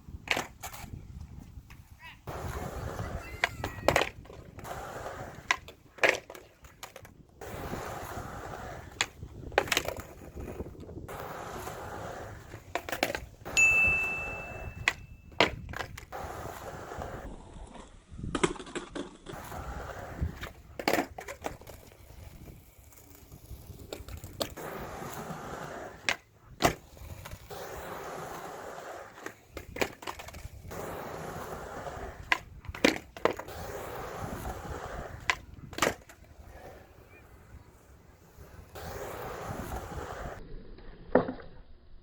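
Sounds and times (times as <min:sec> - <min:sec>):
skateboard wheels rolling: 0:00.0 - 0:41.8
skateboard cracks and slaps: 0:00.2 - 0:01.0, 0:03.4 - 0:13.6, 0:14.8 - 0:36.4.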